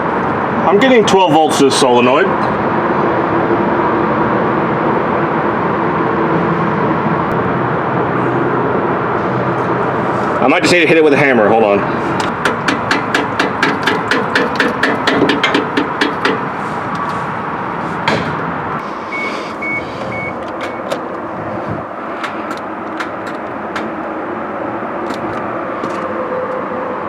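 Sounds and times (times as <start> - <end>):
hammer tapping on metal: 12.1 - 18.5, 19.1 - 21.3, 22.1 - 24.2
scattered clicks: 18.2 - 24.3
short high beeps: 19.1 - 20.9.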